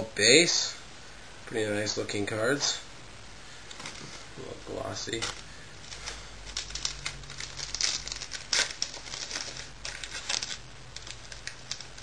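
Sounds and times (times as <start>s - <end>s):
wrapper crinkling: 5.0s - 12.0s.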